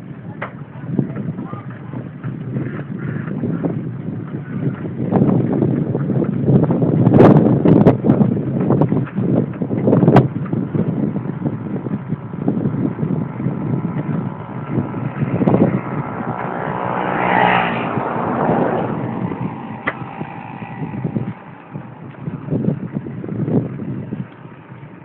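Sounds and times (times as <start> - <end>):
bike rattling on rough trail: 0.0 - 25.0
pitched whirr: 10.5 - 25.0.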